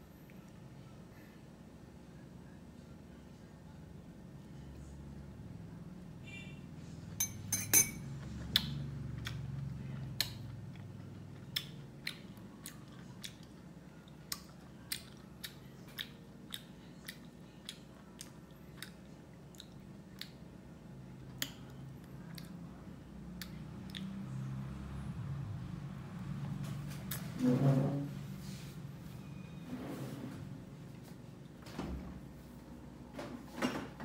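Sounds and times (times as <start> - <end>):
low steady hum: 0.0 - 34.0
person chewing wet mouth clicks: 8.4 - 20.4, 21.2 - 22.6, 23.3 - 24.2.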